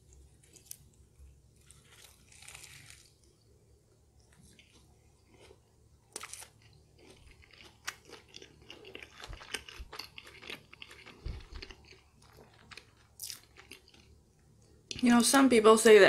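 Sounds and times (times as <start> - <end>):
chewing crunchy food: 1.6 - 3.5, 4.2 - 15.0.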